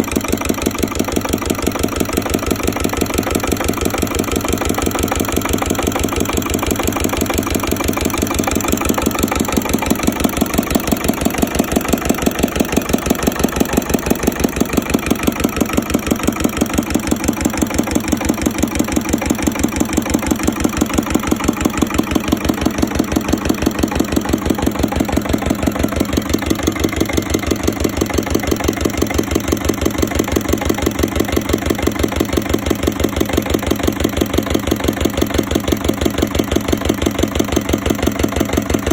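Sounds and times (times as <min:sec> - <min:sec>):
engine running at slow speed: 0:00.0 - 0:38.9.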